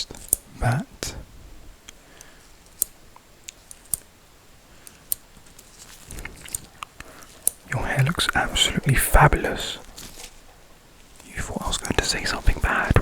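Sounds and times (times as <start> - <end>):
soft rustling: 3.4 - 13.0.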